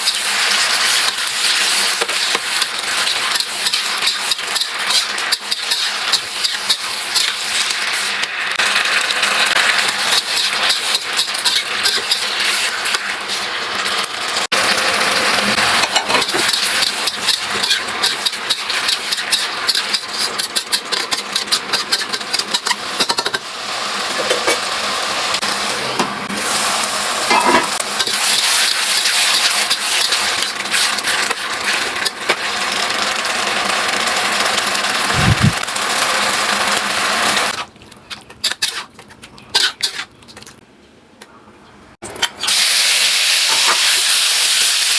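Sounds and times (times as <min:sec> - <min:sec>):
spatula scraping a wok: 0:00.0 - 0:08.3, 0:09.0 - 0:13.9, 0:15.2 - 0:23.2, 0:27.3 - 0:33.4, 0:38.2 - 0:40.5
food sizzling in a wok: 0:00.0 - 0:37.6, 0:42.4 - 0:44.9.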